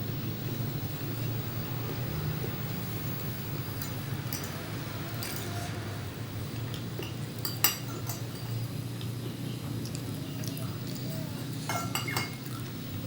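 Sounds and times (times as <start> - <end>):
steady low hum: 0.0 - 13.0
utensils clinking against a dish: 3.8 - 5.9, 6.7 - 9.1, 9.8 - 12.7.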